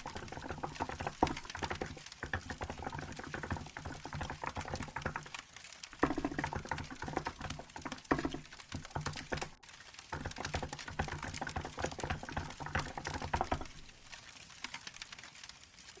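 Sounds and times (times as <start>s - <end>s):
mechanical keyboard typing: 0.0s - 5.4s
firewood crackling: 0.0s - 16.0s.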